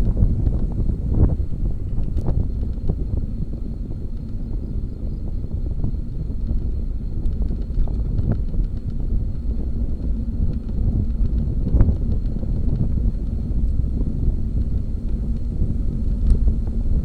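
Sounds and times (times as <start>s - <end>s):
bicycle road rumble: 0.0s - 17.0s
wind buffeting microphone: 0.0s - 17.0s
small clicks and rattles: 6.4s - 16.8s.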